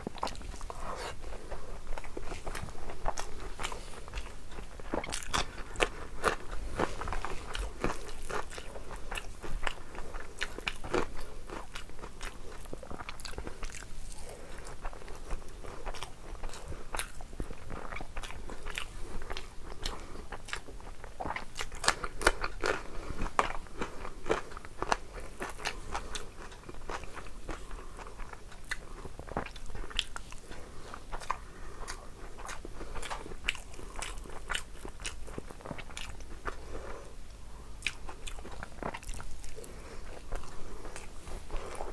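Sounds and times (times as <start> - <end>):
person chewing food: 0.0 - 41.9.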